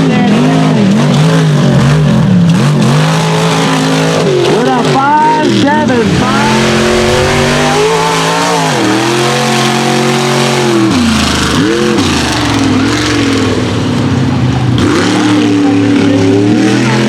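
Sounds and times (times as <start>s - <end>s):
truck engine revving: 5.4s - 17.0s.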